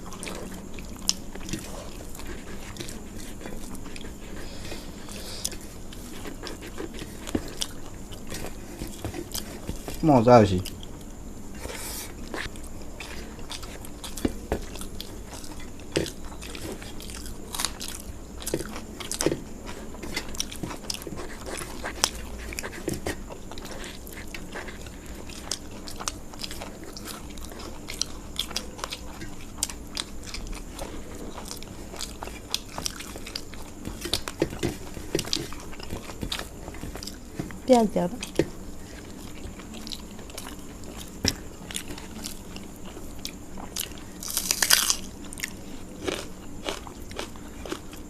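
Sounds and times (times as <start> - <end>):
chewing crunchy food: 0.0 - 48.0.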